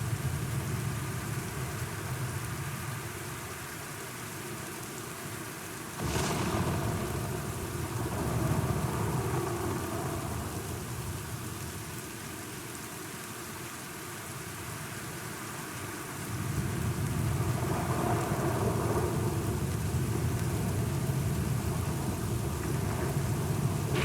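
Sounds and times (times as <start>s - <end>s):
rain falling: 0.0s - 24.0s
thunder rumbling: 6.0s - 12.0s, 16.3s - 24.0s.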